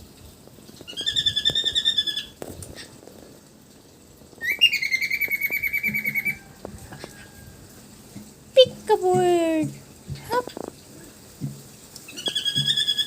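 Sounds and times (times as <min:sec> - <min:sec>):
pet bird trilling calls: 0:00.9 - 0:02.4, 0:04.4 - 0:06.4, 0:12.1 - 0:13.0.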